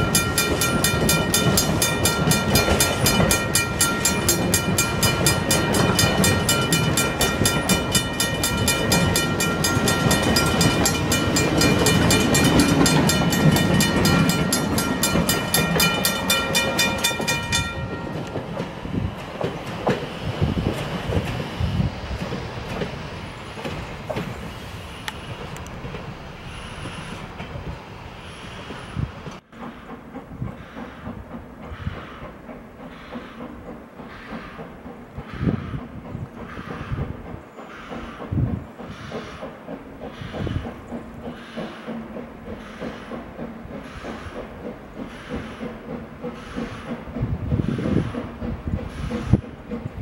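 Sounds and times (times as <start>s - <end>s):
wheels clicking over rail joints: 0.0s - 27.8s, 28.7s - 50.0s
train rumbling: 0.0s - 50.0s.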